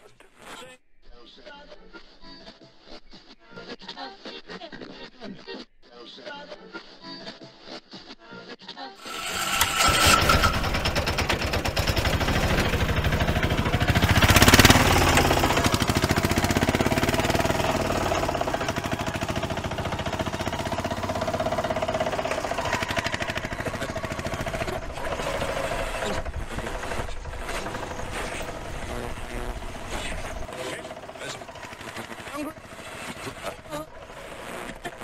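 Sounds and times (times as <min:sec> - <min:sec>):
vehicle engine running: 0:09.0 - 0:35.0.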